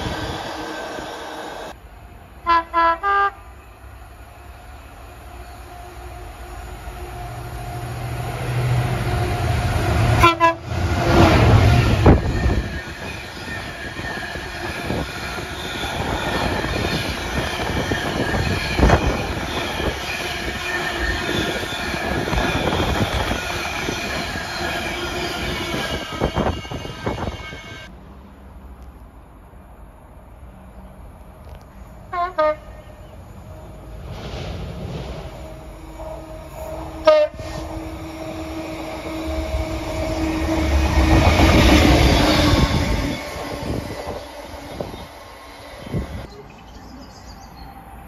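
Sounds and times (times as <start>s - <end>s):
locomotive passing rumble: 0.0s - 48.0s
locomotive horn blasts: 2.4s - 3.5s, 9.0s - 10.9s, 32.1s - 32.9s, 35.7s - 41.6s.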